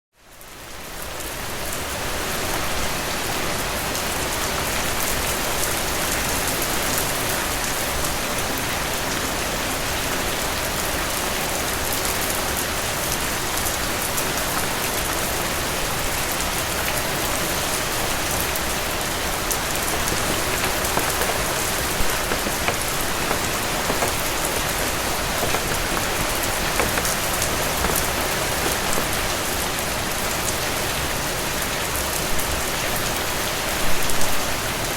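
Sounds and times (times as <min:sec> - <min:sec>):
rain on a roof: 0:09.7 - 0:34.9.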